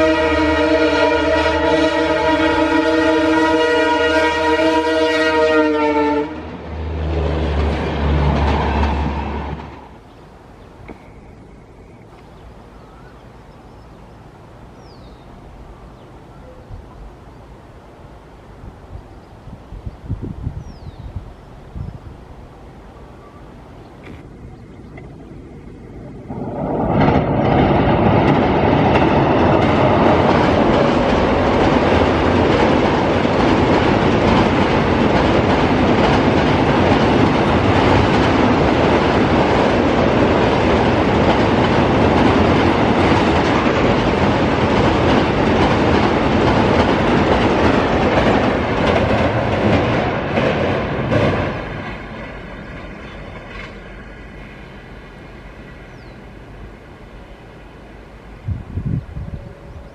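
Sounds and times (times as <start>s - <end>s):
train rumble on bridge: 0.0s - 59.9s
wheels clacking over rail joints: 6.9s - 13.3s, 23.7s - 54.6s.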